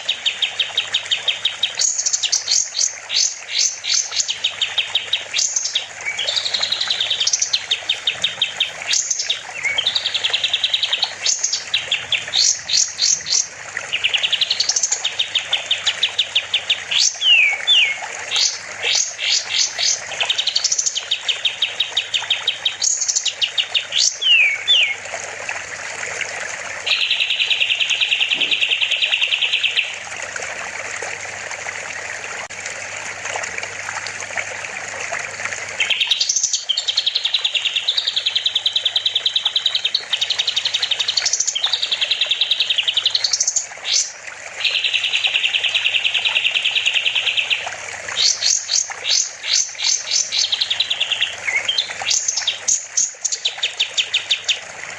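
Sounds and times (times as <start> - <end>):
running water: 0.0 - 54.9
songbird trilling and chirping: 5.4 - 13.5, 23.9 - 25.0, 26.9 - 29.9
buzzy bird trills: 5.4 - 15.5, 26.9 - 29.9.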